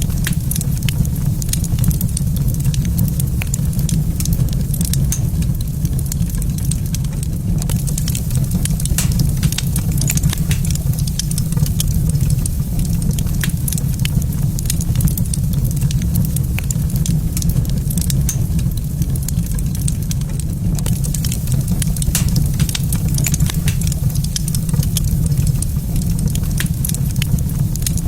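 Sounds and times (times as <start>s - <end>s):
low fire rumble: 0.0s - 28.0s
wood fire crackling: 0.0s - 28.0s.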